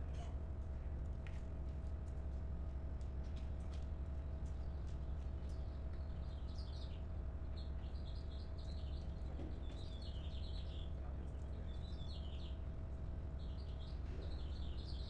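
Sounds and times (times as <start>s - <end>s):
small birds chirping: 4.5s - 12.6s, 13.3s - 15.0s.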